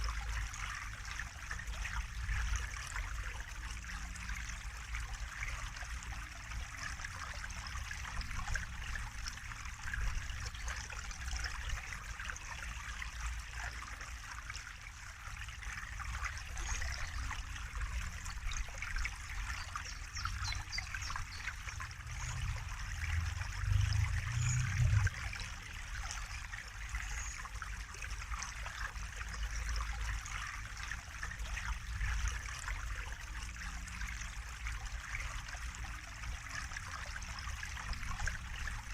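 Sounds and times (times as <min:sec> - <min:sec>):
water trickling: 0:00.0 - 0:38.9
low rumble: 0:21.7 - 0:25.6.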